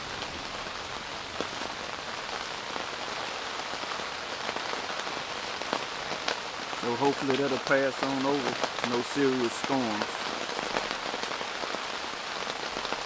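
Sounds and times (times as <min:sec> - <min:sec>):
steady rain hiss: 0:00.0 - 0:13.0
rain drop ticks: 0:05.7 - 0:11.5.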